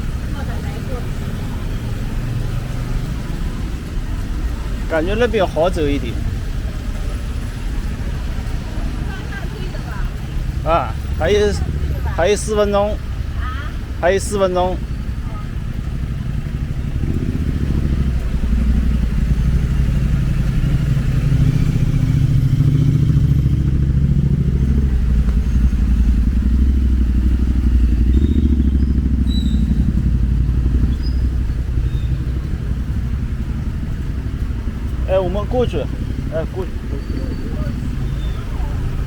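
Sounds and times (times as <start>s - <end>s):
motorcycle engine rumbling: 0.0s - 39.0s.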